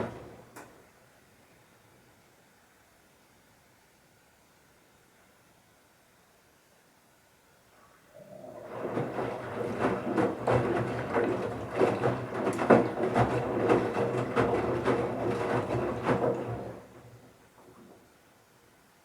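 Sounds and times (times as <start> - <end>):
washing machine drum turning: 0.0 - 0.4, 8.4 - 17.2.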